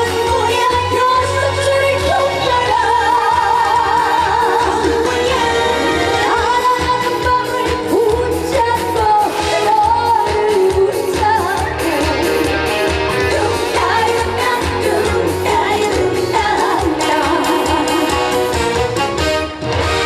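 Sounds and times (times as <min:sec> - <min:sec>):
woman singing with vibrato: 0:00.0 - 0:12.3, 0:13.1 - 0:18.5
band accompaniment with steady beat: 0:00.0 - 0:20.0.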